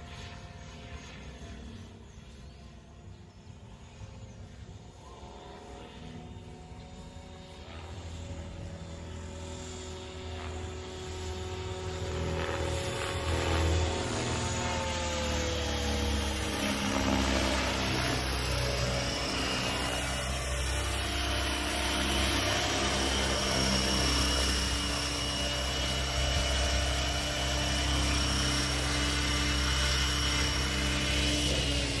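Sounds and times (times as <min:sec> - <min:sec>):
high-pitched electric motor whine: 0:00.0 - 0:32.0
rc helicopter rotor hum: 0:00.0 - 0:32.0.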